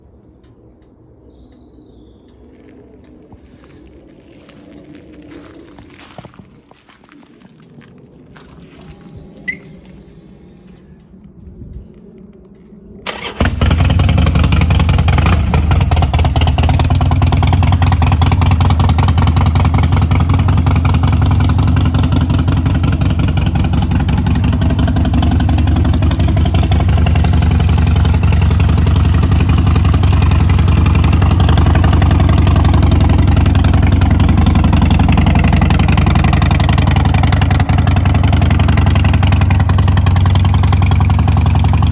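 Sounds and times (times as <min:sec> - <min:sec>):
motorcycle engine running: 0:13.1 - 0:41.9.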